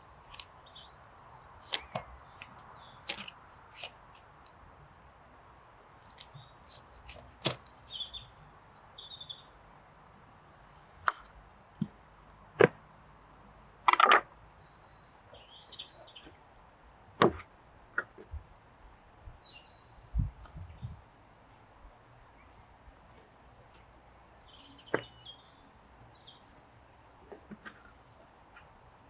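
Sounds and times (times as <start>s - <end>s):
small birds chirping: 0.0s - 4.6s, 5.9s - 9.6s, 14.5s - 16.6s, 19.4s - 27.0s
handling knocks and clicks: 6.1s - 7.7s.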